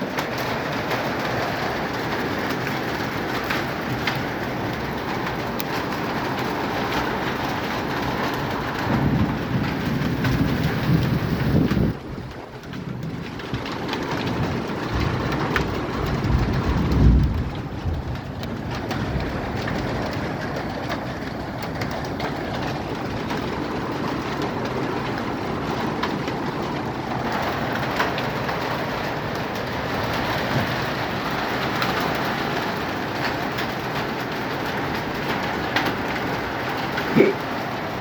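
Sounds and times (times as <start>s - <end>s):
hailstones clicking: 0.0s - 38.0s
heavy rain hissing: 34.4s - 38.0s.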